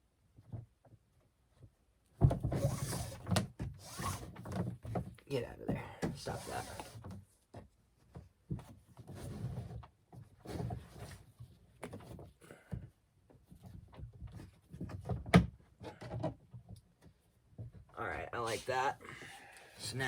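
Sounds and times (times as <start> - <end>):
rustling and scraping: 1.5 - 19.0.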